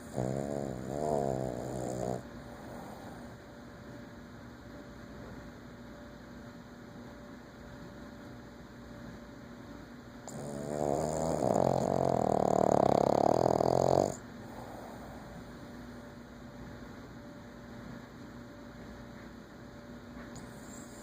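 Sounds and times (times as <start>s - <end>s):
dog snoring loudly: 0.0s - 3.4s, 10.3s - 15.5s, 20.4s - 21.0s.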